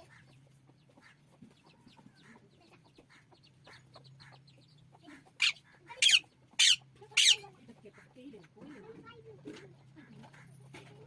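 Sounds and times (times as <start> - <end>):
parrot chattering: 5.3 - 7.5
parrot squawking: 5.3 - 7.5.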